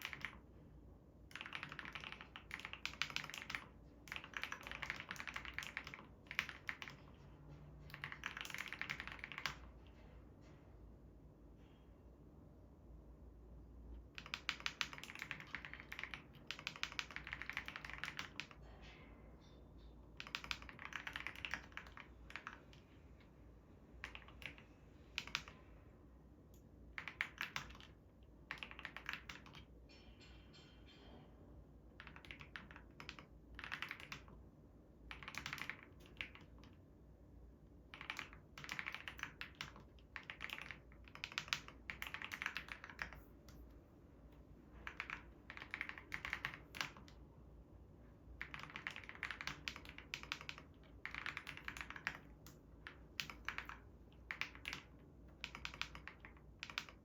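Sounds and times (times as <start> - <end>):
mechanical keyboard typing: 0.0 - 0.5, 1.3 - 7.2, 7.8 - 9.7, 14.1 - 18.6, 20.2 - 22.8, 24.0 - 24.6, 25.2 - 25.6, 26.5 - 29.7, 32.0 - 34.4, 35.1 - 36.8, 37.9 - 43.6, 44.8 - 47.2, 48.4 - 57.0.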